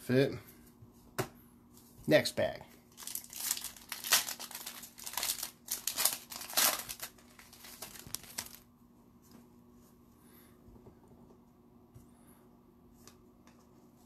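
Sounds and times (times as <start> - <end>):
card pack wrapper crinkling: 2.9 - 8.6.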